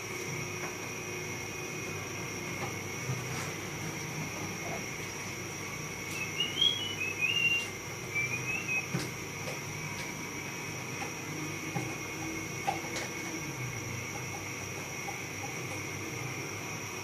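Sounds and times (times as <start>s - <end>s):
small bird chirping: 6.1s - 8.9s.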